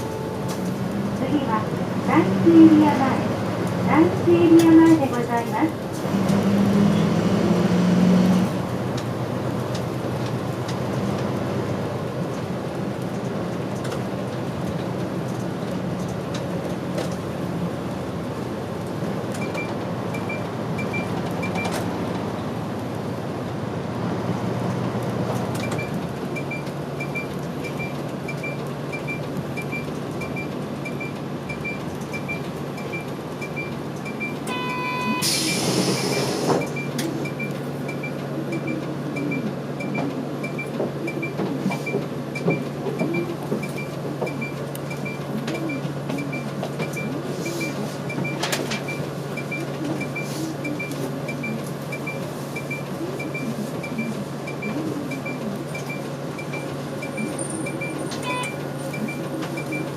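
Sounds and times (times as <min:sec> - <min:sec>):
diesel bus engine running: 0:00.0 - 0:59.9
short beep: 0:34.2 - 0:37.5, 0:55.9 - 0:59.8
air brakes hissing: 0:35.0 - 0:36.8.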